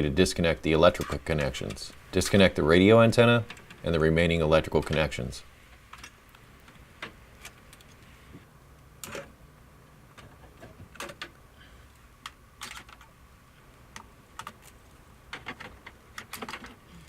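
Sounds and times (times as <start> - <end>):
plastic clicks and rattles: 12.2 - 13.1, 13.9 - 16.8.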